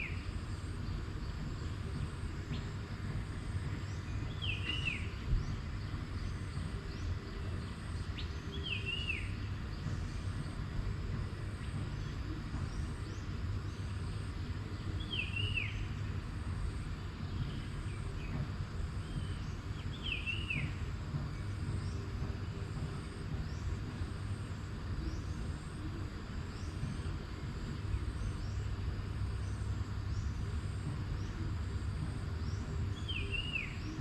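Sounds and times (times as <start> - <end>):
low rumble: 0.0 - 34.0.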